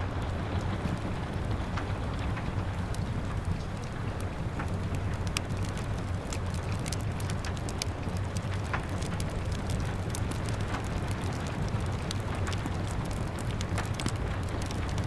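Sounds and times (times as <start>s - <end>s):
rain patter: 0.0s - 15.0s
wood fire crackling: 0.0s - 15.0s.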